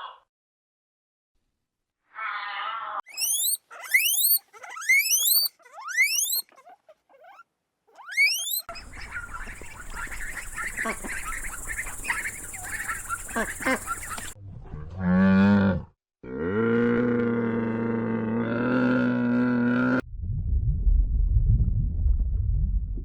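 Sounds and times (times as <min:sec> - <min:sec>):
chattering calls: 0:03.1 - 0:07.4, 0:08.0 - 0:14.4
low rumble: 0:20.0 - 0:23.0.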